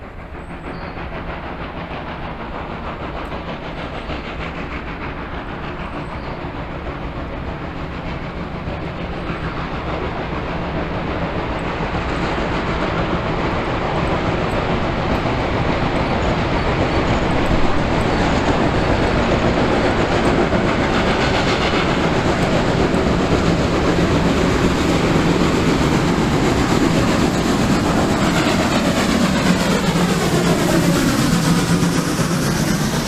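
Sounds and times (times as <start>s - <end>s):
freight train rolling over rails: 0.0s - 33.0s.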